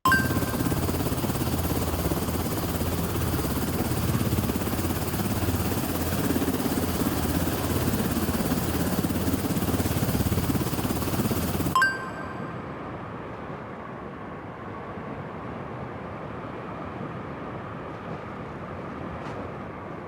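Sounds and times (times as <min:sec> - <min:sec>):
aircraft roar: 0:00.1 - 0:12.6.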